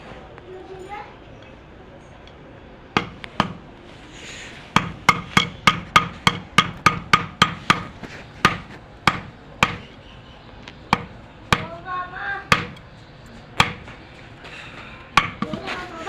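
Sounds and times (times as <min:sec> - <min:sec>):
blade chopping on wooden block: 0:03.0 - 0:03.6, 0:04.8 - 0:10.0, 0:10.9 - 0:11.8, 0:12.5 - 0:12.9, 0:13.6 - 0:14.0, 0:15.2 - 0:15.8.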